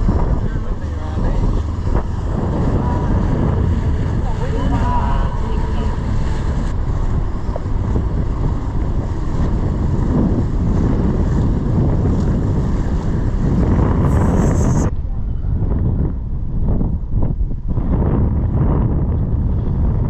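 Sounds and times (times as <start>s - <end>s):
rushing water: 0.0s - 14.9s
wind buffeting microphone: 0.0s - 20.0s.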